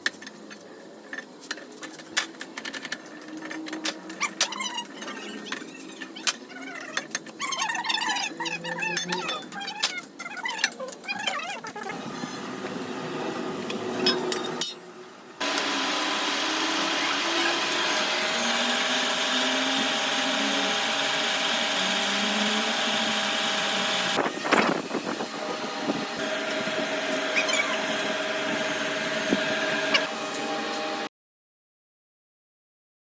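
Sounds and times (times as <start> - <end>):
power tool motor running: 15.4 - 31.1.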